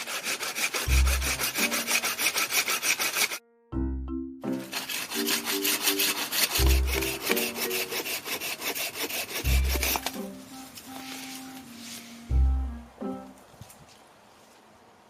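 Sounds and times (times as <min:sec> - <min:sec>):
hand saw rasping through wood: 0:00.0 - 0:03.4, 0:04.5 - 0:10.2
background music: 0:00.5 - 0:13.6.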